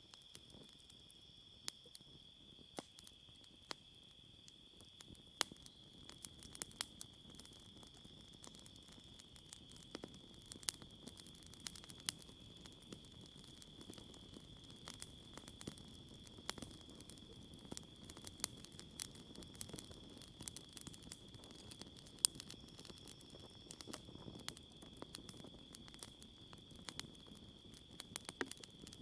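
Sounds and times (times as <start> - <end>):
campfire crackling and popping: 0.0 - 29.0
crickets chirping: 0.0 - 29.0.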